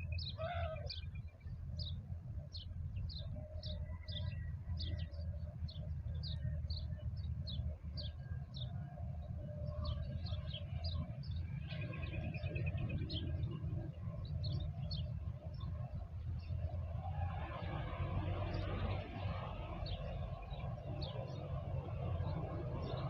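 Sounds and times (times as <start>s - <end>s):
bird trill: 0.0s - 8.8s
small birds chirping: 0.0s - 23.0s
steady low rumble: 0.0s - 23.0s.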